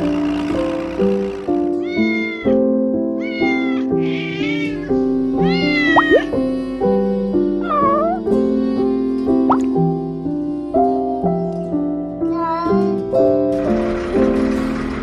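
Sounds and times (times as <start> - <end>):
background music: 0.0 - 15.0
kitten meowing: 1.8 - 2.6, 3.2 - 6.5, 7.6 - 8.3.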